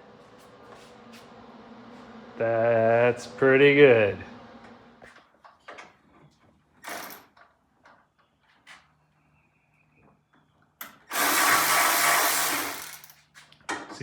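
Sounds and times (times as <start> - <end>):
cordless power tool driving fastener: 6.8 - 7.3, 11.0 - 13.2
tools clicking and knocking: 10.8 - 11.4, 12.2 - 14.0.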